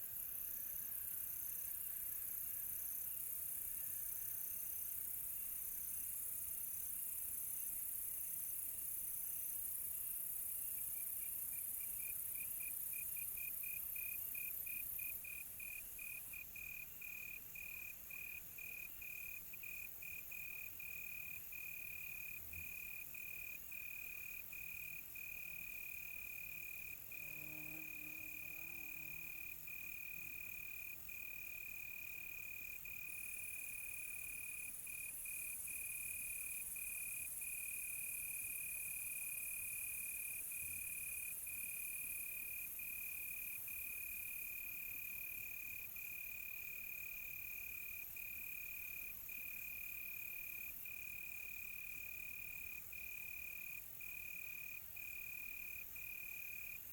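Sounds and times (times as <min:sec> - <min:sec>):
hiss of night insects: 0:00.0 - 0:56.9.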